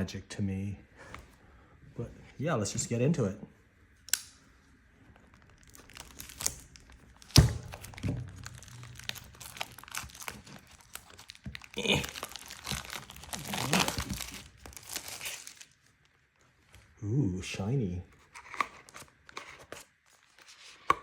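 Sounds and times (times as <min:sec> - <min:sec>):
plastic wrapping crinkling and tearing: 0:05.2 - 0:16.9.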